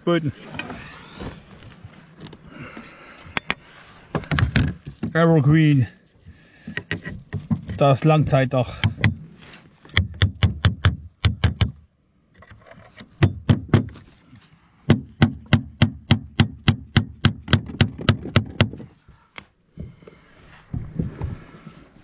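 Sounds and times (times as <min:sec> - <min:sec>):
hammer striking nails: 0:09.9 - 0:11.8, 0:13.2 - 0:14.0, 0:14.9 - 0:18.8.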